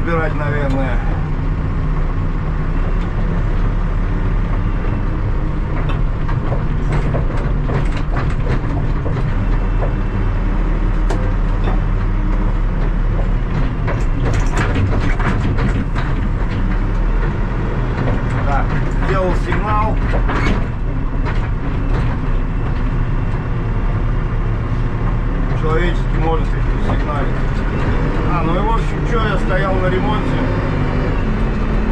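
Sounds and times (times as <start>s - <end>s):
diesel engine running: 0.0s - 31.9s
machine knocks and rattles: 5.6s - 10.2s, 10.8s - 23.1s.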